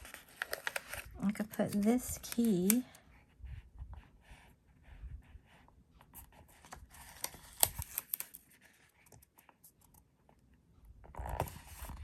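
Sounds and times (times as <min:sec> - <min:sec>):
paper rustling and crinkling: 0:00.0 - 0:03.0, 0:06.2 - 0:09.7.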